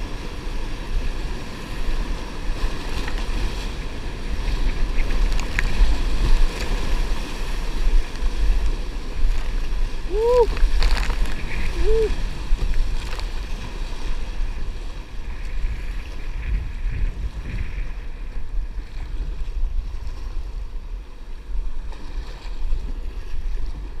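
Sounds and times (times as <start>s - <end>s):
water washing around kayak: 0.0s - 24.0s
wind buffeting microphone: 0.0s - 24.0s.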